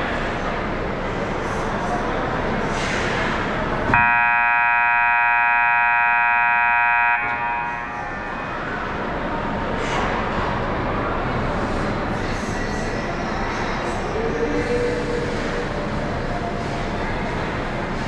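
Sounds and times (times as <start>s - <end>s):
arena horn blast: 4.0s - 8.2s.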